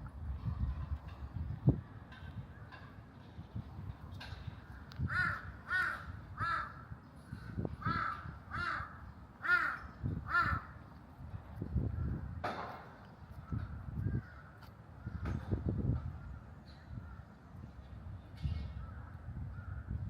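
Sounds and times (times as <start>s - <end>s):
crow cawing: 5.0s - 7.0s, 7.8s - 10.8s.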